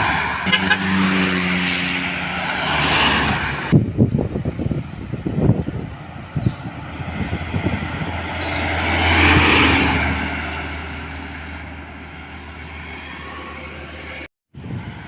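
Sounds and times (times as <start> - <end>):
truck passing by: 0.0 - 15.0.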